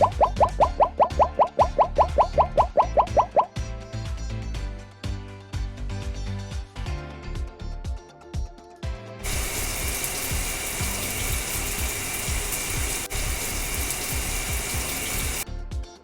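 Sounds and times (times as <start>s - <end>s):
background music with steady beat: 0.0s - 16.0s
loud steady hissing: 9.2s - 15.4s.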